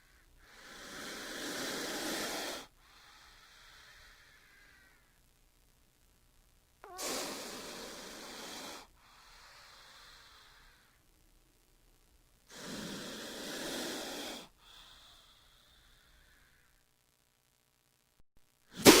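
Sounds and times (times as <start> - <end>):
snake hissing: 0.0 - 5.0, 6.8 - 11.0, 12.5 - 16.8, 18.7 - 19.0.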